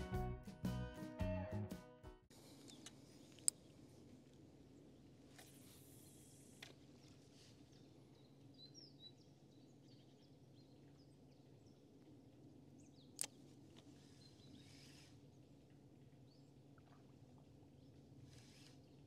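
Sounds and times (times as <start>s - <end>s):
faint bird chirps: 5.6s - 11.9s, 13.9s - 15.6s.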